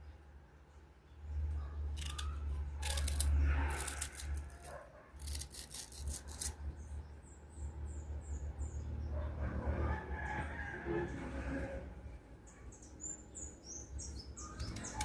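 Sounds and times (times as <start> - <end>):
knife cutting crunchy mango: 1.9 - 6.6.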